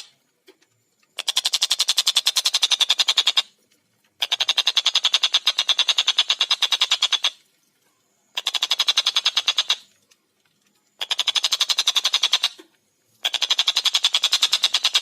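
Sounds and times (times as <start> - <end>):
kingfisher rapid chattering call: 4.2 - 7.4, 8.4 - 9.8, 11.0 - 12.6, 13.2 - 15.0.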